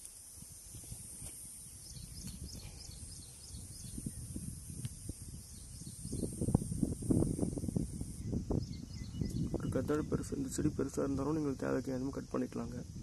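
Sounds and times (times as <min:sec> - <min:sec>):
steady high hiss: 0:00.0 - 0:13.0
small bird chirping: 0:00.7 - 0:11.1.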